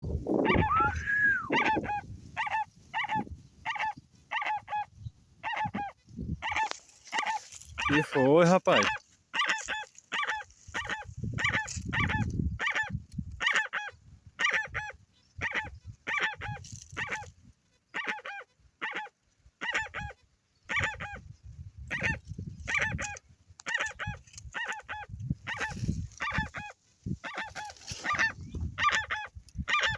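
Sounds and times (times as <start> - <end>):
birds honking calls: 0.3 - 17.3, 17.9 - 29.9.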